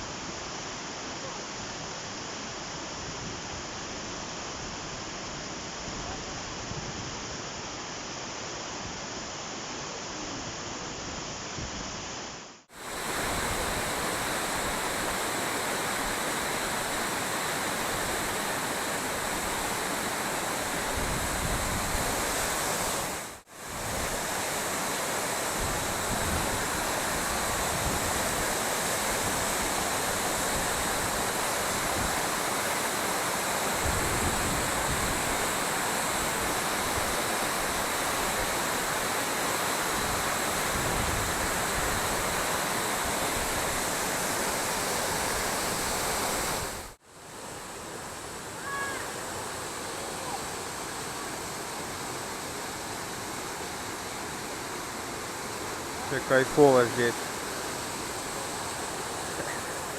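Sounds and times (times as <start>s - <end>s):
waterfall rushing: 12.7s - 59.9s.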